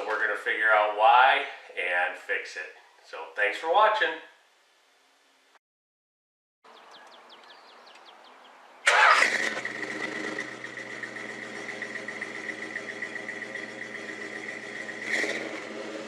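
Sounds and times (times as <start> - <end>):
car engine cranking and starting: 8.8 - 16.0.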